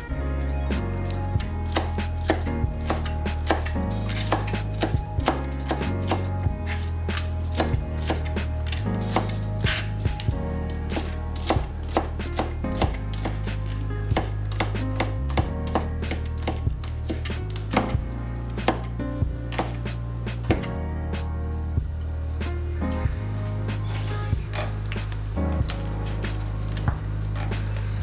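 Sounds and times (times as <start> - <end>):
background music with low notes: 0.0 - 28.0
knife chopping on cutting board: 1.4 - 18.9, 19.5 - 20.7.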